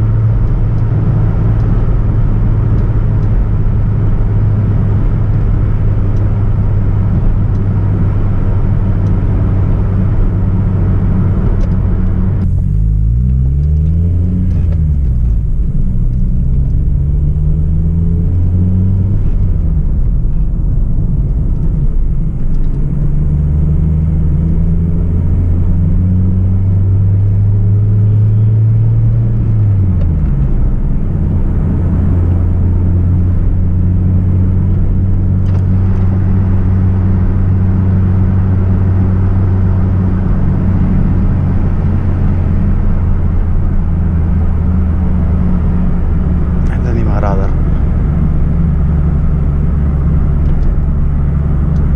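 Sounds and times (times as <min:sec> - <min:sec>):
car engine running: 0:00.0 - 0:51.9.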